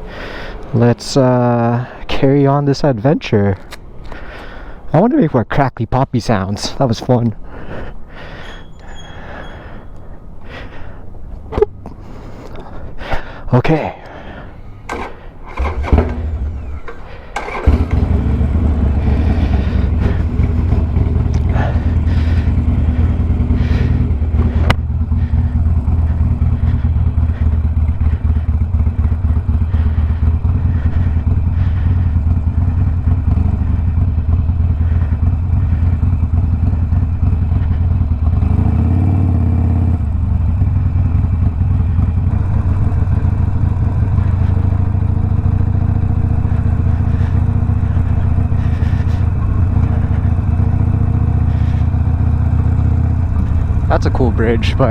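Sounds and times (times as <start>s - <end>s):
motorcycle engine running: 14.6s - 54.9s
engine starting knocks: 14.7s - 21.1s.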